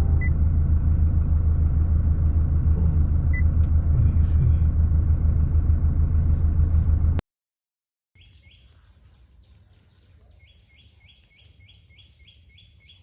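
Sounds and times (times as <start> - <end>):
moving car rumble: 0.0 - 7.2.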